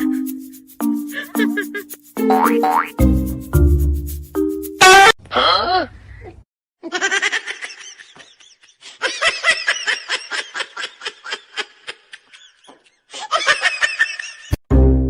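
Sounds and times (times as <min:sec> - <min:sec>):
person laughing hard: 0:01.1 - 0:02.8.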